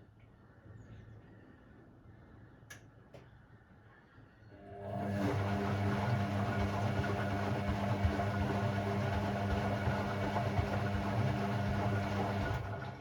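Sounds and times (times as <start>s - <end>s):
washing machine humming: 4.6s - 13.0s.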